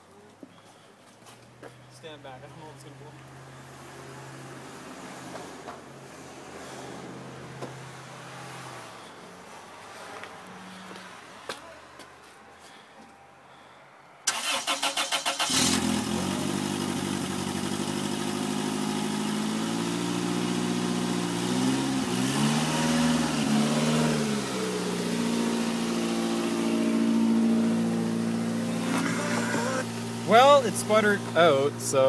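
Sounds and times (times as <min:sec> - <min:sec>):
car starter cranking: 0:14.3 - 0:16.2
car engine running unevenly: 0:23.3 - 0:31.6.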